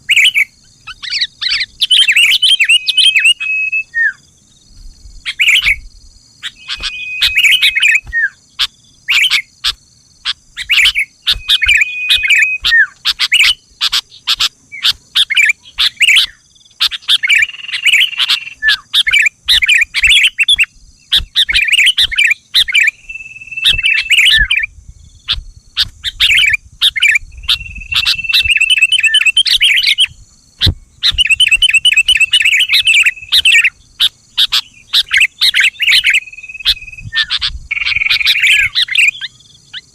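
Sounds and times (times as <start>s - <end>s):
bird chirping and singing: 0.0s - 4.3s, 5.2s - 39.9s.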